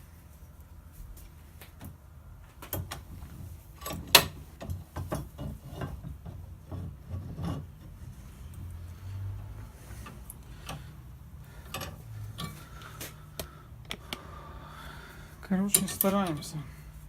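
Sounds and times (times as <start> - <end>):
clicks and knocks of parts: 1.6 - 7.5, 9.9 - 14.3, 15.6 - 16.6.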